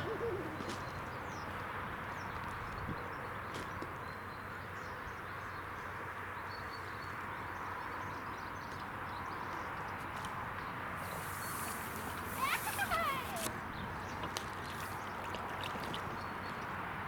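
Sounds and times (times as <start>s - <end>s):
outdoor rushing hiss: 11.0s - 13.5s.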